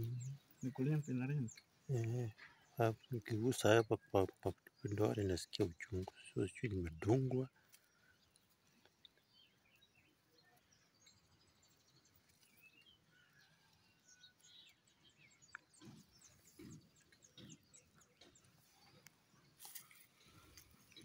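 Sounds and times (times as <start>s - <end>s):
faint bird chirps: 0.0s - 21.0s
soft low handling sounds: 15.8s - 21.0s.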